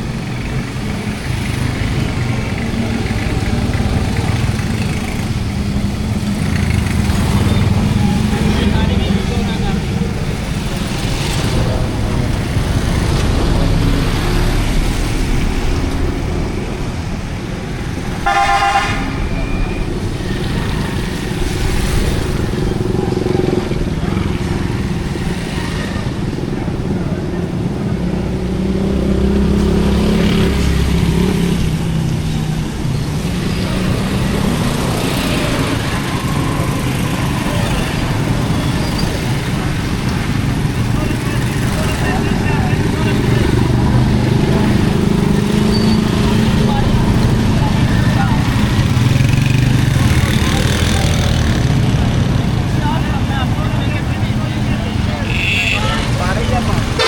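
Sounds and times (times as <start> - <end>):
street noise: 0.0 - 57.0
vehicle engine rumbling: 0.0 - 57.0.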